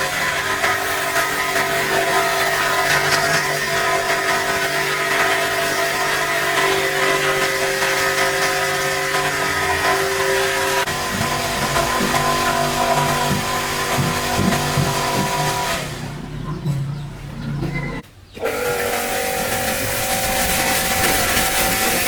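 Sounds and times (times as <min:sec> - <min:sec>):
cleaning machine motor: 0:00.0 - 0:22.0
loud hiss: 0:19.0 - 0:22.0.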